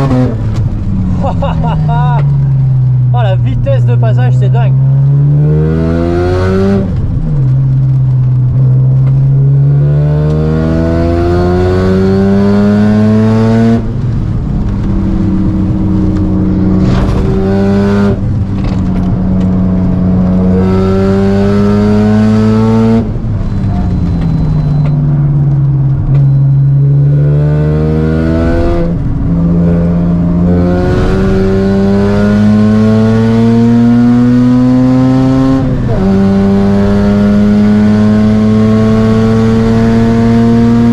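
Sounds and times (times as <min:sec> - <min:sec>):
rotary engine accelerating: 0:15.0 - 0:23.2, 0:26.7 - 0:40.9.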